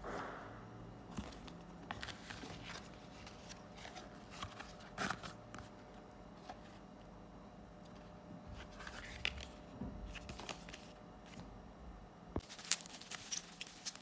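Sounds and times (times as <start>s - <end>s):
card packaging rustling: 1.1s - 5.7s, 8.6s - 11.0s, 12.4s - 14.0s.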